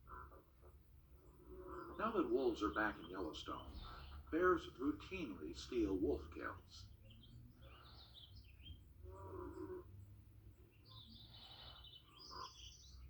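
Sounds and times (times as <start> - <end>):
bird chirps and trill: 10.6 - 13.0.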